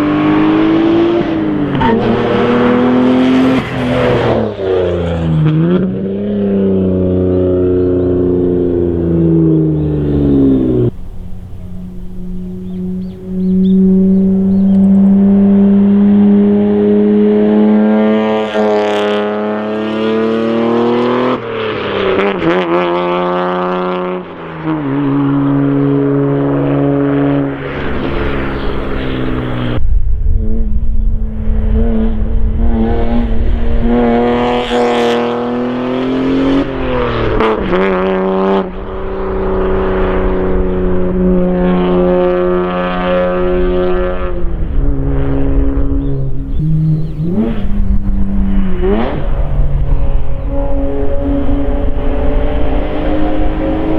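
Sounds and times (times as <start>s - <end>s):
turbo car engine accelerating: 0.0s - 53.9s.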